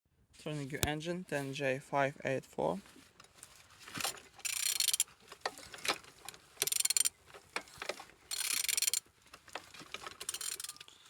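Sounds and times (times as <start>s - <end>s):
ratchet wrench clicking: 4.4s - 5.1s, 6.6s - 7.1s, 8.3s - 9.0s, 10.2s - 10.9s.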